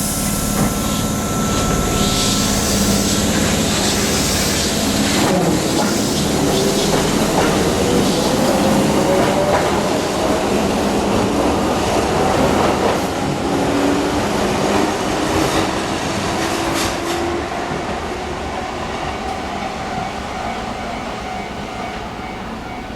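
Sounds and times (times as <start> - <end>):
electric train motors whining: 0.0 - 14.6
train wheels clicking over rail joints: 3.1 - 9.9.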